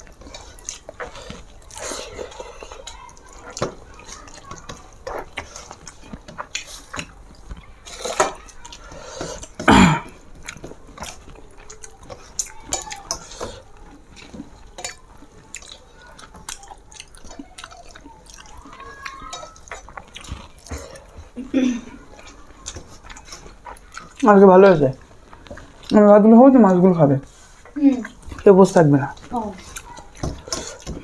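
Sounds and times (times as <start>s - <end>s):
wet eating smacks: 0.0s - 7.7s, 8.7s - 24.4s.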